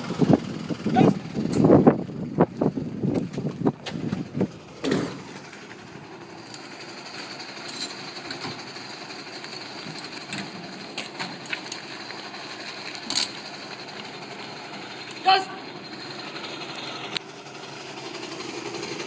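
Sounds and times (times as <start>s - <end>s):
fire truck engine and pump: 0.0s - 19.0s.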